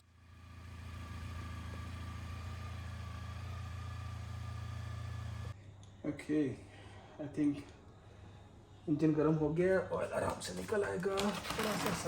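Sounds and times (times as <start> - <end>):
motorcycle engine idling: 0.0 - 5.6
faint engine whine: 0.0 - 9.1.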